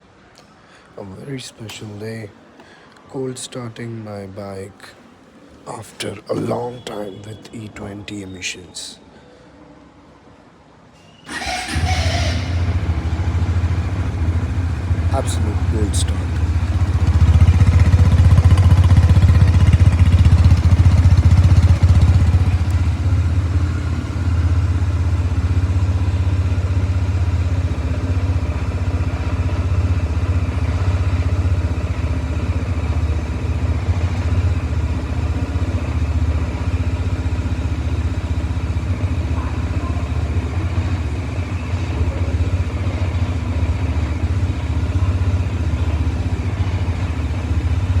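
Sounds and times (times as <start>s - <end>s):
motorcycle engine idling: 11.3s - 48.0s.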